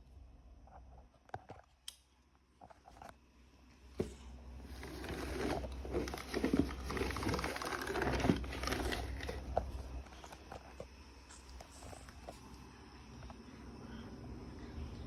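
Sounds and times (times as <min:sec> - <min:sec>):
low steady hum: 0:00.0 - 0:15.0
crinkling and rustling: 0:04.0 - 0:12.6.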